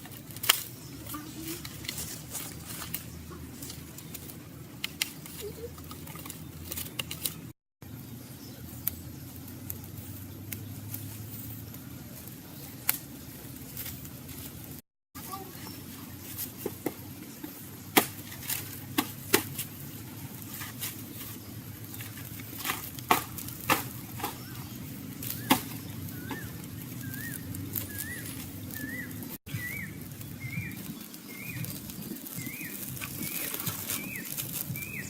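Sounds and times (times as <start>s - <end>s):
bird chirping: 23.9s - 35.0s.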